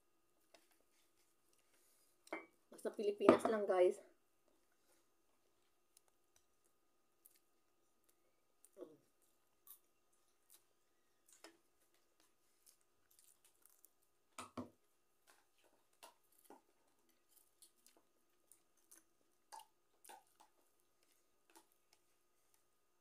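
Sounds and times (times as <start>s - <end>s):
chewing: 5.9s - 14.1s, 15.2s - 22.7s.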